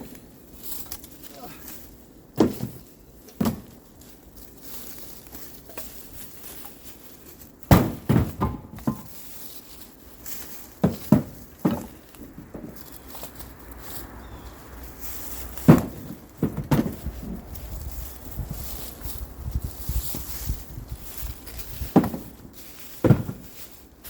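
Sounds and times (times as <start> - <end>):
firewood dropped with thumps: 2.4 - 3.8, 7.6 - 9.4, 10.3 - 13.4, 15.3 - 17.7, 21.4 - 23.8
quiet rustling: 8.3 - 24.0.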